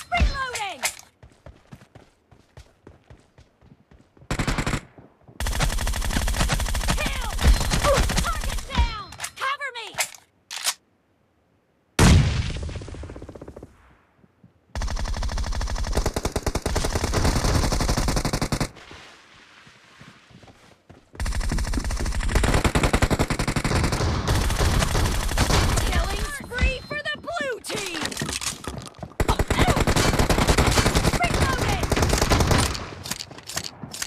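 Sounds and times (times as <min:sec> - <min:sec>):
rapid automatic gunfire bursts: 0:05.4 - 0:07.1, 0:14.8 - 0:18.7, 0:21.2 - 0:26.3, 0:29.2 - 0:32.8
video game gunshot: 0:12.0 - 0:13.1.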